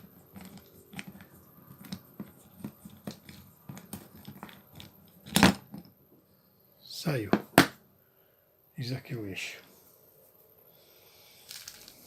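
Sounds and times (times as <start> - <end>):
small nut clicking and scraping: 0.0 - 5.8, 11.2 - 12.0.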